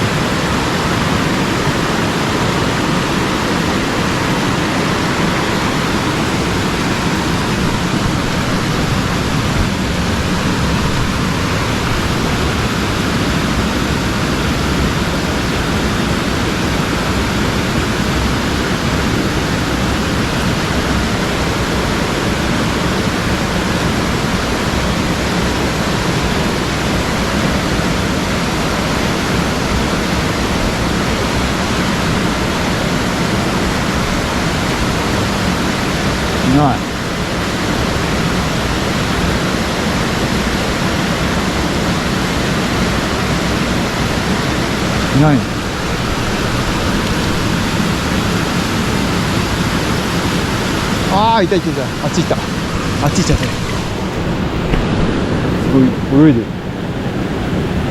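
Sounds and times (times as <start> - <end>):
rushing mountain stream: 0.0 - 57.9.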